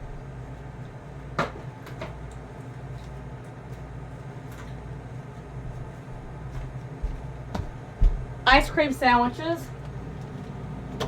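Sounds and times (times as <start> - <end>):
freezer hum: 0.0 - 11.0.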